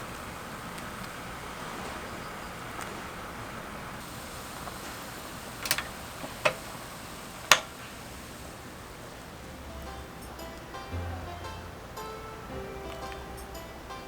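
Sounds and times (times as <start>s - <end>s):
steady low hiss: 0.0s - 14.0s
sharp clicks: 5.6s - 6.8s, 7.4s - 7.8s.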